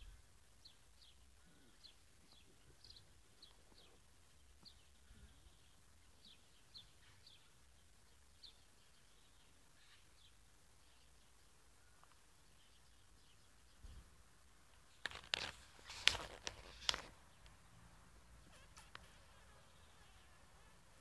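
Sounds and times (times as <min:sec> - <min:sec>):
faint bird chirps: 0:00.0 - 0:14.2.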